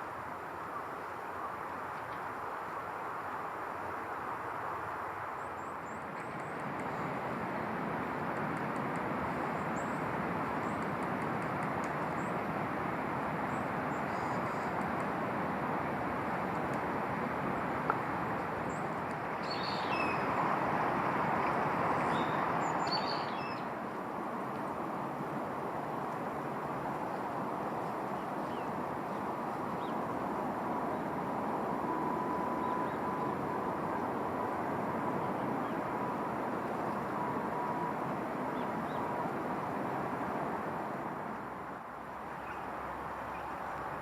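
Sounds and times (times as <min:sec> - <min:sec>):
small birds chirping: 0:18.7 - 0:20.3, 0:22.0 - 0:23.7.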